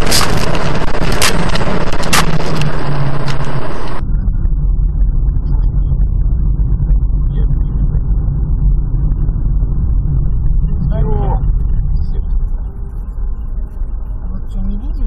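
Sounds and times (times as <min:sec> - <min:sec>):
sharp clicks: 0:00.0 - 0:04.0
muffled road and engine rumble: 0:00.0 - 0:15.0.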